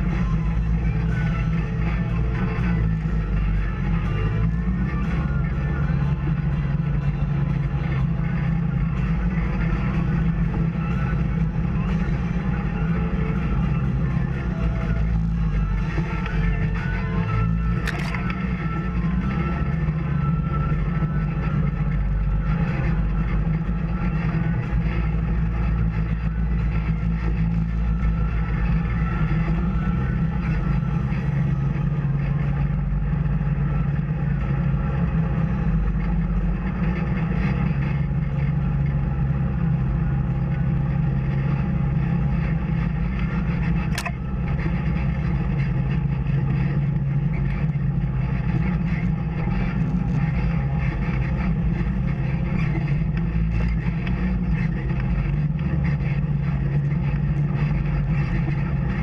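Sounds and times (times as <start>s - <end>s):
off-road vehicle engine droning: 0.0s - 59.0s
sharp click: 17.8s - 18.4s.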